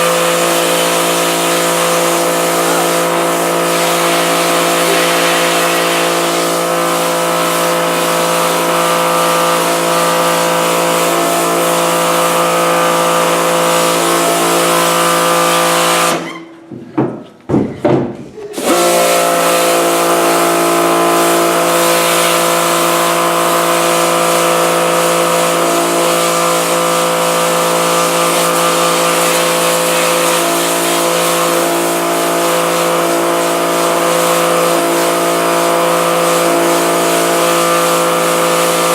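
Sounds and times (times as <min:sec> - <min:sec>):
pressure washer spraying: 0:00.0 - 0:16.4, 0:18.5 - 0:38.9
short water spurts: 0:00.1 - 0:16.0.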